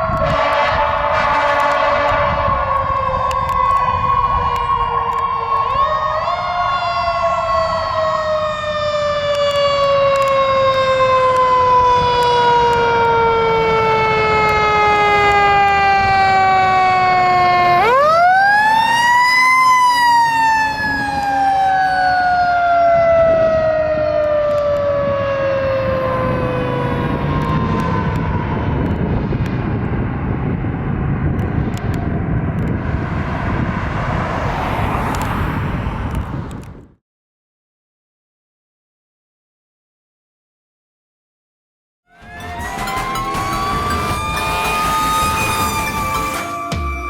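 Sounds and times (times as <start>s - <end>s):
road noise: 0.0s - 37.0s, 42.1s - 47.0s
truck engine: 26.0s - 36.3s, 42.1s - 47.0s.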